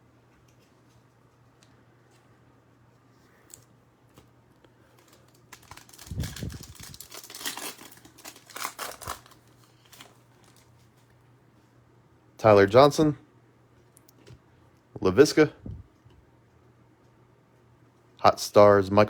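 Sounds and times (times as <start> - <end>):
cards being handled: 3.4 - 10.7
wrapper tearing and crinkling: 5.0 - 10.7.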